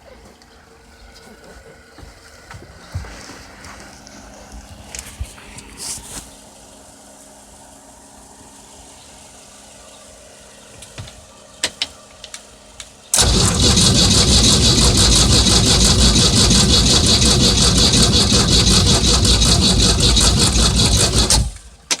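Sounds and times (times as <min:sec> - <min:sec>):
engine starter cranking: 0:13.1 - 0:22.0
sharp clicks: 0:13.2 - 0:22.0.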